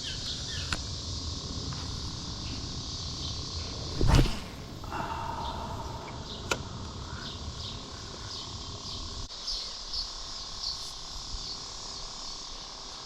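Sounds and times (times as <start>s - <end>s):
steady low rumble: 0.0s - 9.3s
night insects chirping: 0.0s - 13.0s.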